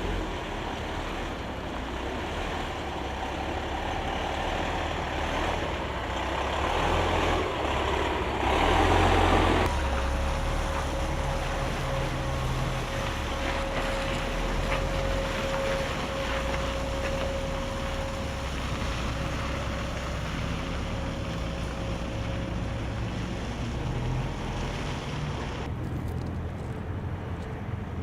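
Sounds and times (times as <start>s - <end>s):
diesel truck engine running: 0.0s - 28.0s
steady high whine: 9.6s - 22.9s.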